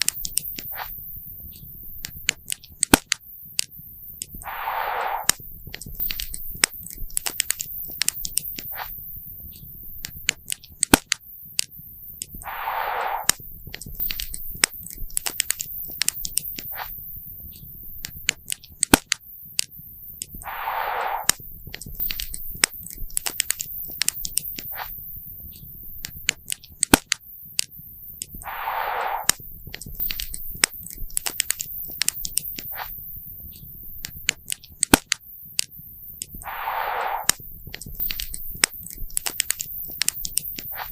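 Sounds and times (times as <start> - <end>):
brief rushing hiss: 4.4 - 5.4, 12.4 - 13.4, 20.4 - 21.4, 28.4 - 29.4, 36.4 - 37.4.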